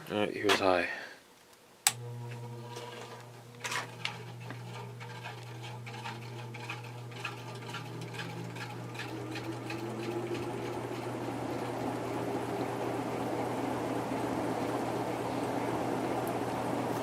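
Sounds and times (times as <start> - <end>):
ceiling fan motor humming: 1.7 - 17.0
light scraping and ticking: 2.3 - 11.7.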